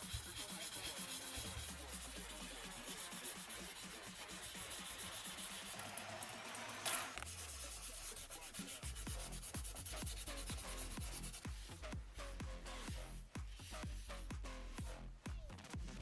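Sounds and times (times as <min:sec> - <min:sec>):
sharp scrape: 0:00.0 - 0:11.4
sandpaper rubbing: 0:00.0 - 0:11.5
electronic music with steady beat: 0:00.0 - 0:16.0.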